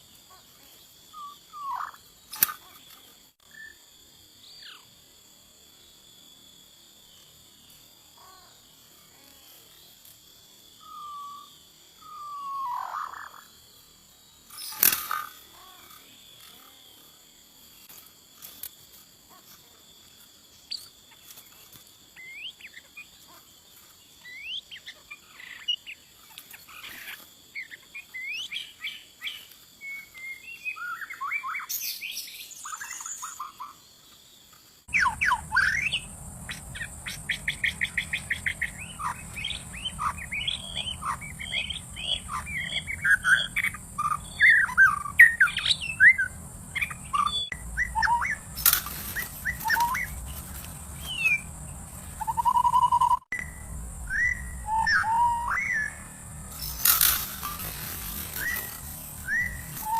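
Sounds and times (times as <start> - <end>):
high insect drone: 0.0 - 59.9
bird singing: 24.1 - 33.8, 34.9 - 59.9
low hum: 34.9 - 59.9.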